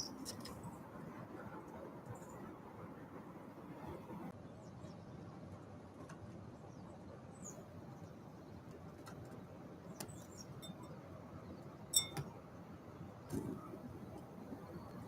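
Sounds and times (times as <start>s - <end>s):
small birds chipping: 6.7s - 15.0s.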